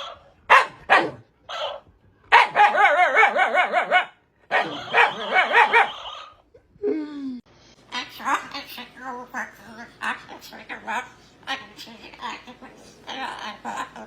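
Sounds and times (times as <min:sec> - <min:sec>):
dog crying: 0:02.4 - 0:06.5.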